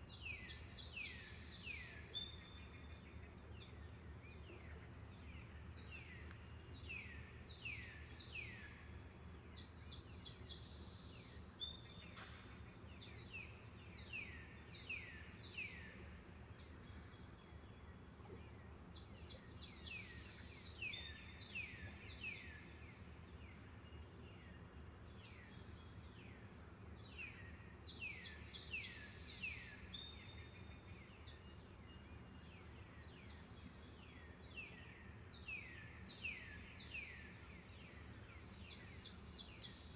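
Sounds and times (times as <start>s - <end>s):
songbird singing: 0.0s - 8.8s, 27.0s - 39.9s.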